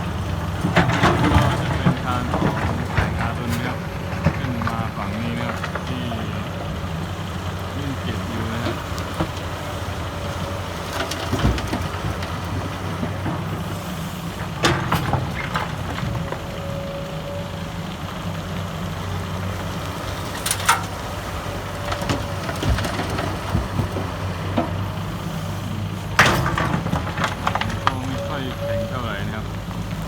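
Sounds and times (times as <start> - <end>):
bucket clanking: 0.0 - 16.7, 19.8 - 30.0
excavator diesel engine running: 0.0 - 30.0.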